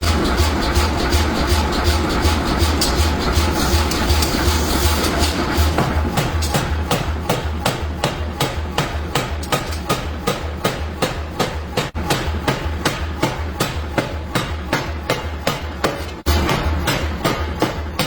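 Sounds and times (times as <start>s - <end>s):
hammer striking steel: 0.0s - 18.0s.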